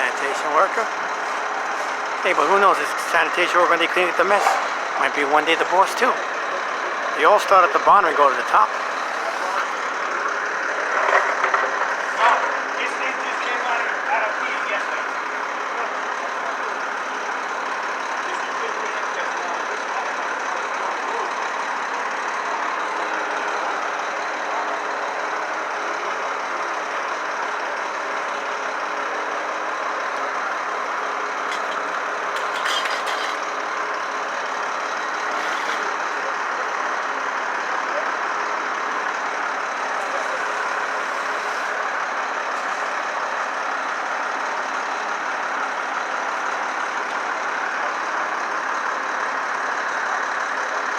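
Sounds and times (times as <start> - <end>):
street noise: 0.0 - 50.9
truck diesel engines idling: 0.0 - 50.9.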